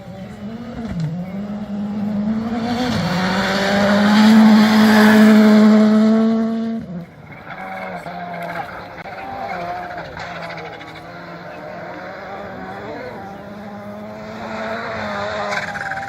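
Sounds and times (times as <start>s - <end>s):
rally car engine at high revs: 0.0s - 16.0s.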